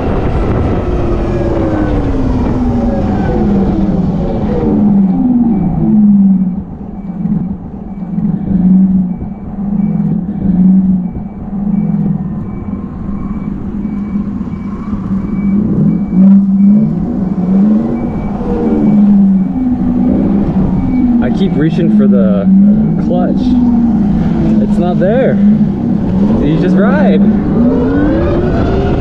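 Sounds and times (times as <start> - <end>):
electric motorcycle hum: 0.0 - 29.0
low rumble: 0.0 - 29.0
faint high beep: 4.8 - 25.0.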